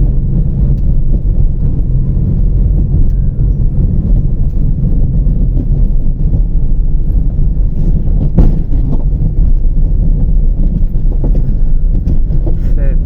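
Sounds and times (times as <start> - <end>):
car cabin road and engine rumble: 0.0 - 13.0
car hitting rock knock: 8.2 - 9.4.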